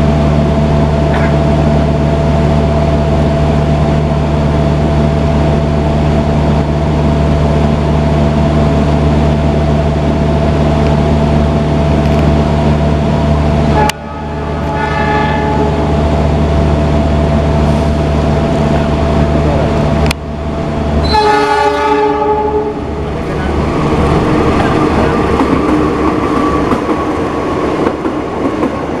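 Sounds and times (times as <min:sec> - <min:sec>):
moving train rumble: 0:00.0 - 0:29.0
train horn: 0:13.7 - 0:16.0, 0:21.0 - 0:22.8.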